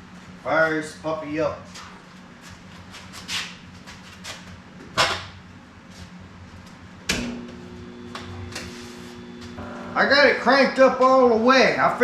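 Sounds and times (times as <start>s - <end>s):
welder electrical hum: 3.6s - 12.0s
welder clunks: 7.1s - 10.1s.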